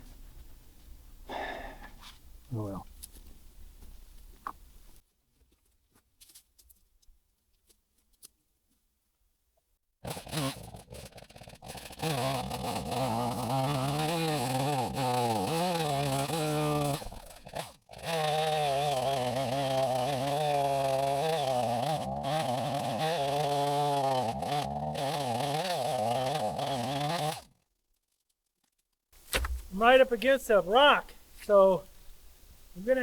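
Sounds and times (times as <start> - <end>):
chainsaw cutting log: 10.0 - 27.6, 29.2 - 29.8.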